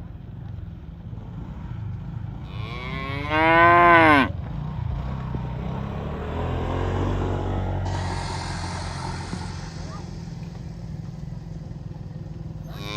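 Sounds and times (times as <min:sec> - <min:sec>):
cow mooing: 0:02.4 - 0:04.3, 0:12.7 - 0:12.9
steady low rumble: 0:07.4 - 0:12.8.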